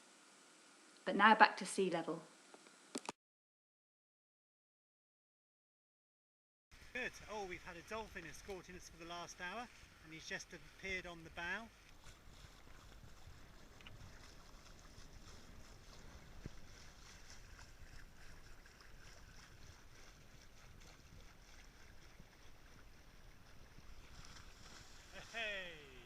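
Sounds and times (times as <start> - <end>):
wind: 6.7 - 26.0
water washing around yacht: 6.8 - 26.0.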